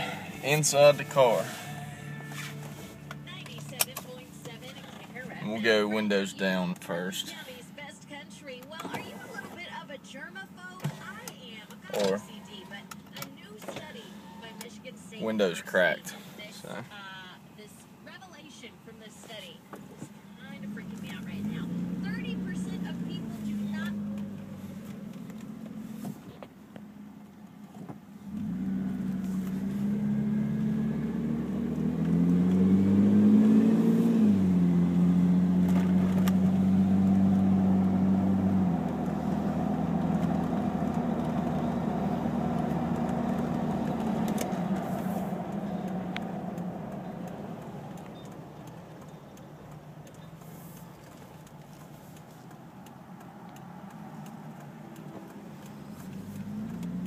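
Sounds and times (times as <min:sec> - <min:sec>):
car engine accelerating: 0:00.0 - 0:07.9, 0:19.7 - 0:57.0.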